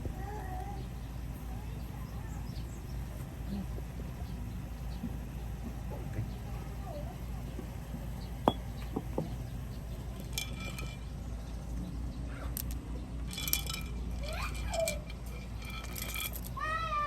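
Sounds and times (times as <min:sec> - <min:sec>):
metal parts clinking: 0:10.0 - 0:16.6.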